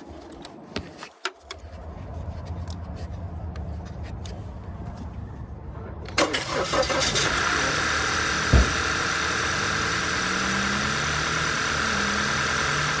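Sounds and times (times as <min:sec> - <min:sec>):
car engine idling: 0:06.0 - 0:13.0
low thump: 0:08.5 - 0:09.1.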